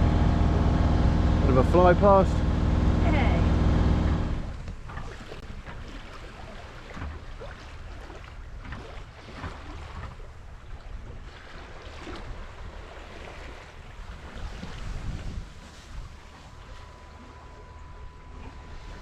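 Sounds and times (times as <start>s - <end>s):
water splashing along hull: 0.0s - 19.0s
wind buffeting microphone: 13.8s - 16.4s.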